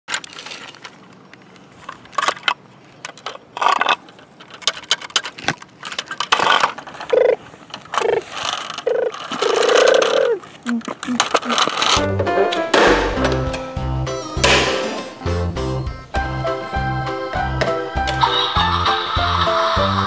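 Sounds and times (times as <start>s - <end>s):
plastic toy truck rattling: 0.1s - 13.6s.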